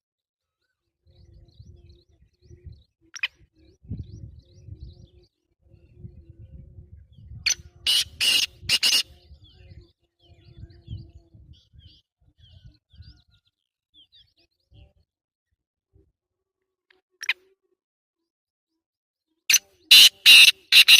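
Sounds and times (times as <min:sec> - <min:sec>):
harsh bird call: 0:07.9 - 0:09.1, 0:19.5 - 0:20.9.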